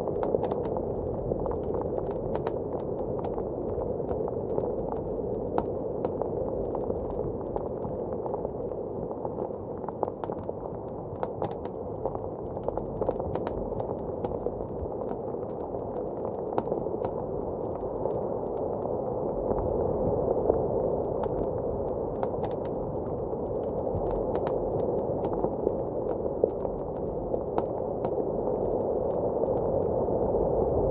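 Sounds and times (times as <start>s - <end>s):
wood fire crackling and popping: 0.0s - 19.8s, 20.6s - 30.9s.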